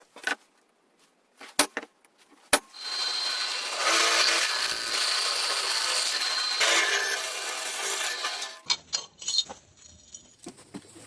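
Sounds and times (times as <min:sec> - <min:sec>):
power tool grinding with whine: 0:02.7 - 0:08.7.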